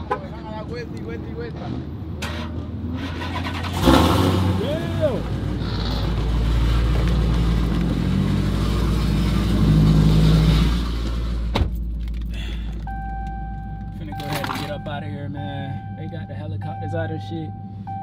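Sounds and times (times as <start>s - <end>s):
car engine rumbling: 0.0s - 18.0s
steady high tone: 12.8s - 18.0s.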